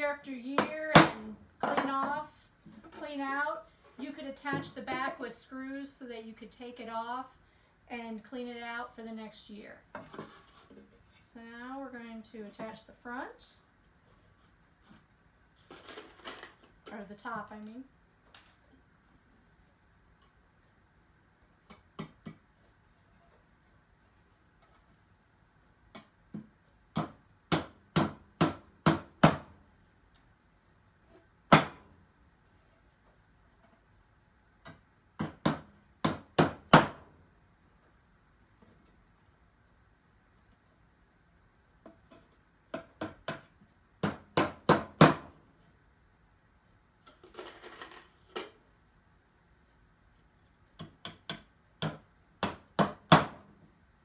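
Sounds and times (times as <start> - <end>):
hammer striking nail into wood: 27.0 - 29.5, 31.5 - 31.9, 35.2 - 37.0, 42.7 - 45.3, 50.8 - 53.5.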